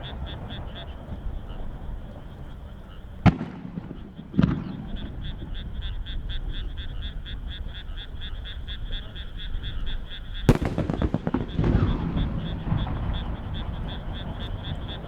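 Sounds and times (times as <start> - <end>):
frogs croaking: 0.0 - 15.0
firework shells bursting: 10.5 - 15.0.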